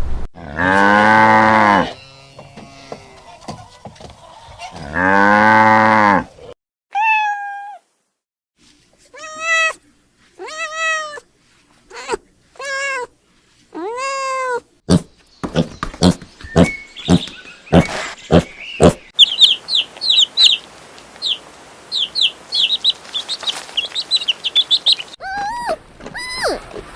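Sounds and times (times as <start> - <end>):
cow mooing: 0.4 - 3.0, 4.8 - 6.3
cat meowing: 7.0 - 7.8, 9.2 - 9.8, 10.4 - 11.2.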